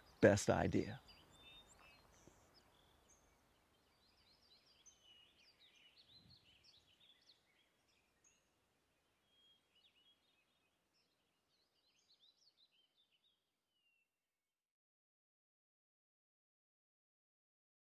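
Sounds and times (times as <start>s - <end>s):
faint birds chirping: 0.0s - 14.2s.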